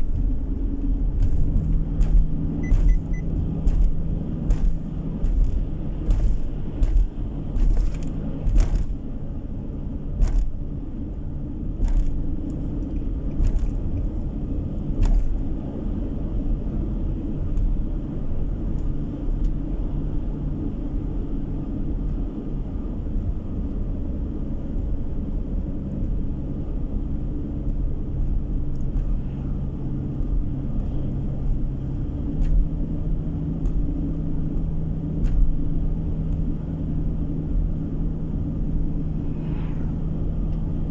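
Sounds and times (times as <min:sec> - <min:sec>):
car engine hum: 0:00.0 - 0:40.9
road rumble: 0:00.0 - 0:40.9
sharp clicks or knocks: 0:01.2 - 0:09.0.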